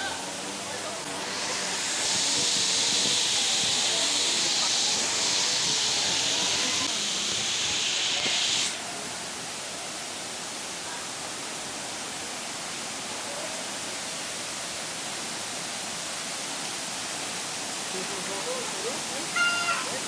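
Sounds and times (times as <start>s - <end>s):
high hissing buzz: 0.0s - 8.8s
forest ambience rushing noise: 0.0s - 20.0s.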